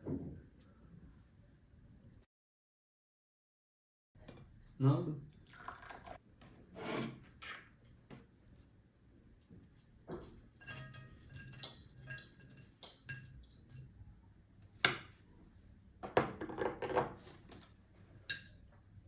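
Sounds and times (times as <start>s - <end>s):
cutlery clinking on dishes: 10.1s - 14.0s, 16.2s - 18.7s.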